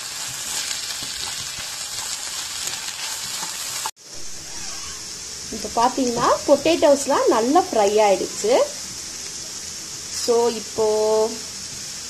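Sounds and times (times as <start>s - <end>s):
potatoes and onions sizzling: 0.0s - 12.0s
spatula stirring with clicks: 0.2s - 3.9s.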